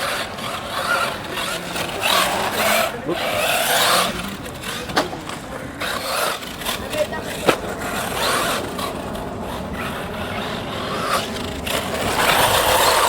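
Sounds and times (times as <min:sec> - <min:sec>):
electric rc car motor: 0:00.0 - 0:13.0.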